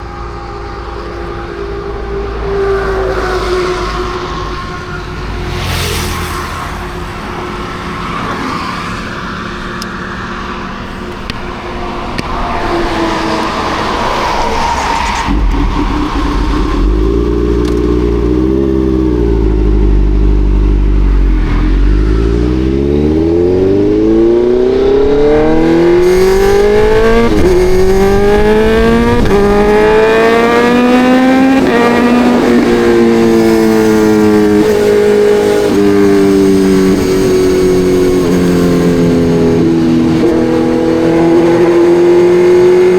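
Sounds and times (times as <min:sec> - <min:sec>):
motorcycle engine accelerating: 0:11.0 - 0:42.9.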